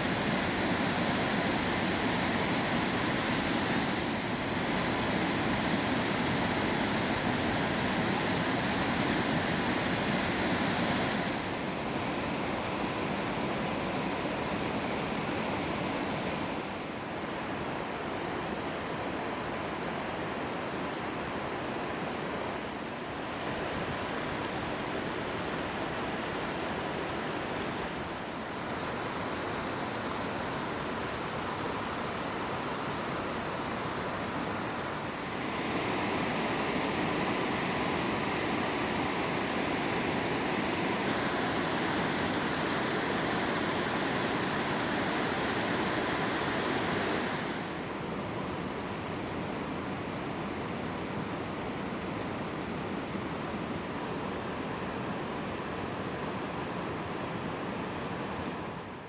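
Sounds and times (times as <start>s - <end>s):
waterfall rushing: 22.7s - 48.5s.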